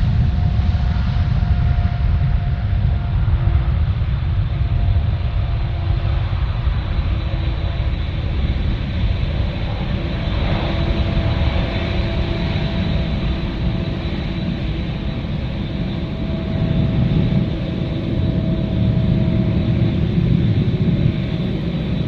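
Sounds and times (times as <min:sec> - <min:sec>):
jet engines rumbling: 0:00.0 - 0:22.0
faint whining tones: 0:06.2 - 0:22.0.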